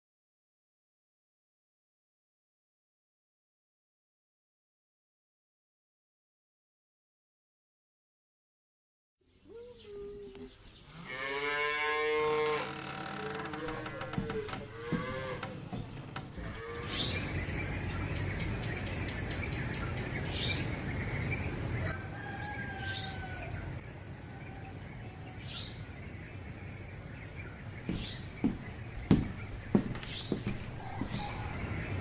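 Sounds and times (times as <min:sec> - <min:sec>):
cattle lowing: 0:11.0 - 0:16.8
bird chirping: 0:24.8 - 0:32.0.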